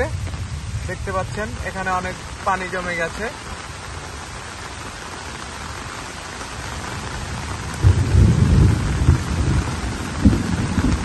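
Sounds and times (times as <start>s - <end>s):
loud irregular low rumble: 0.0s - 4.6s
heavy rain falling: 0.0s - 11.0s.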